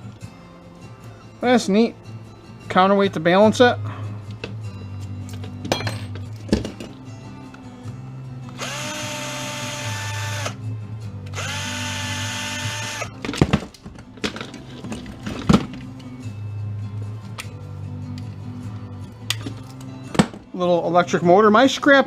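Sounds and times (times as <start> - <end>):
cordless drill whining: 8.5 - 10.6, 11.3 - 13.1.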